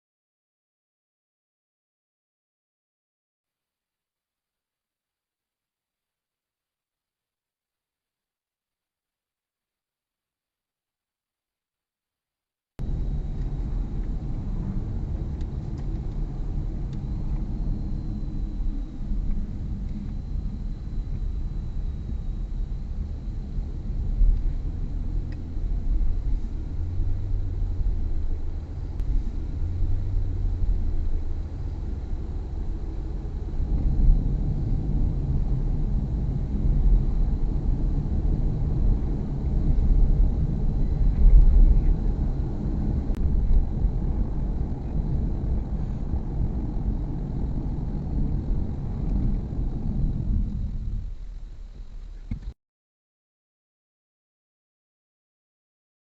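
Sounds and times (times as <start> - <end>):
road and engine rumble: 12.8 - 52.6.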